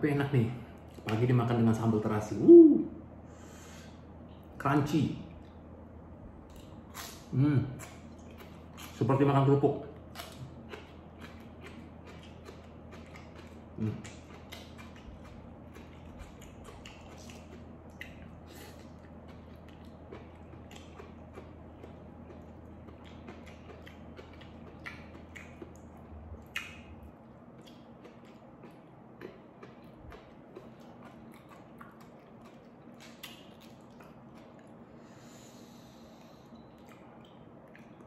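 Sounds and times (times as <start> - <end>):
crisp chewing crunches: 6.4 - 35.0.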